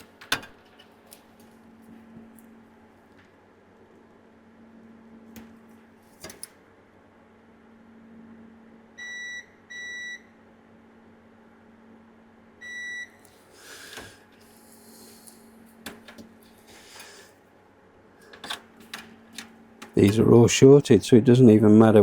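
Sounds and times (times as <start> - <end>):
multimeter continuity beep: 9.0 - 10.3, 12.6 - 13.2.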